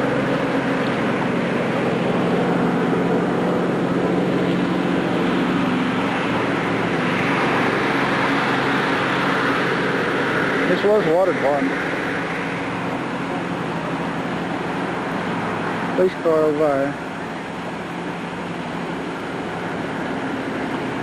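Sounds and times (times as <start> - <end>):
rushing noise: 0.0 - 21.0
vehicle engine humming: 0.0 - 21.0.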